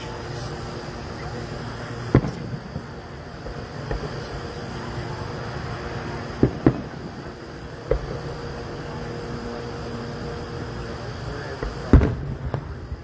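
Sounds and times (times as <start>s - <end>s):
distant fireworks bangs: 2.0s - 9.0s, 11.5s - 13.0s.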